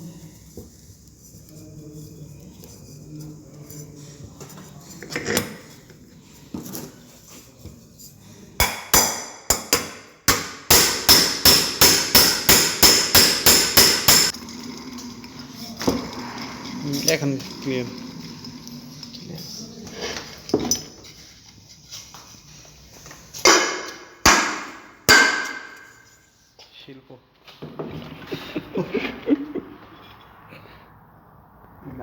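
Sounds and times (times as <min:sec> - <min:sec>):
hammer blows ringing: 0:08.6 - 0:14.3, 0:23.5 - 0:26.0.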